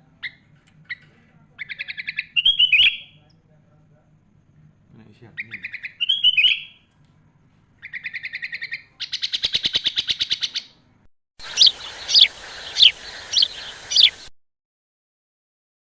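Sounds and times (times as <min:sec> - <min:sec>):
bird chattering trills: 0:00.2 - 0:03.2, 0:05.3 - 0:06.9, 0:07.8 - 0:10.8, 0:11.4 - 0:14.3
bird down-slurred whistles: 0:01.6 - 0:03.2, 0:05.4 - 0:06.9, 0:11.4 - 0:14.3.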